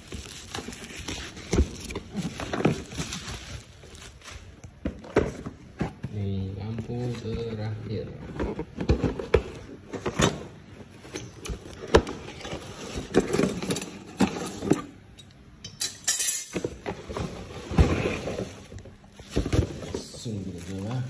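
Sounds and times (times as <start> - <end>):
rustling: 0.0 - 6.0, 16.6 - 21.0.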